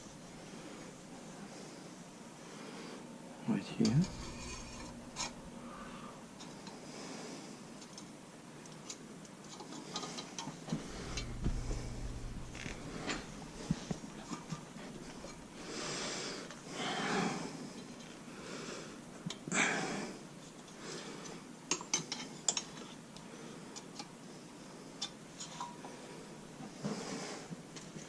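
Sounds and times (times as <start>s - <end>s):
person breathing heavily: 5.4s - 7.7s, 10.7s - 20.2s.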